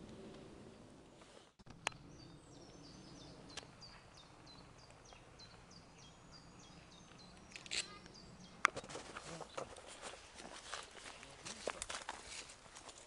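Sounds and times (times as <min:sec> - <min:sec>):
songbird chirping: 0:00.0 - 0:11.7
footsteps and rustling in undergrowth: 0:08.7 - 0:13.0.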